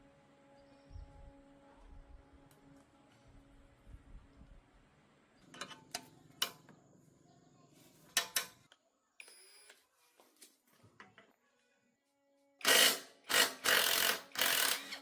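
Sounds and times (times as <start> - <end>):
low background hum: 0.0 - 9.7.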